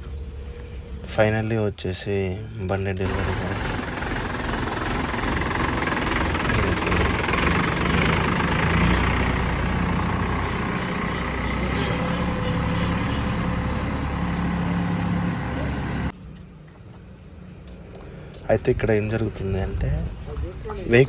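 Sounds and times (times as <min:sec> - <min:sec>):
tractor diesel engine idling: 0:03.0 - 0:16.1.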